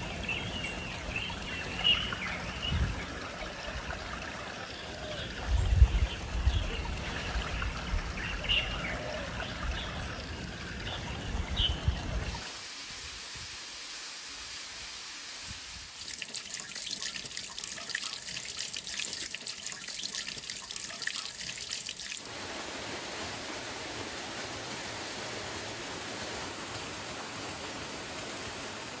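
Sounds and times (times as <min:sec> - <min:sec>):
water splashing and trickling: 0:00.0 - 0:13.5, 0:15.3 - 0:29.0.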